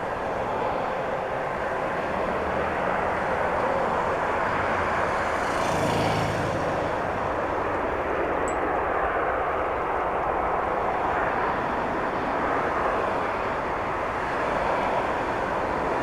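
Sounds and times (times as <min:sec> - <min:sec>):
jet engines at takeoff thrust: 0:00.0 - 0:16.0.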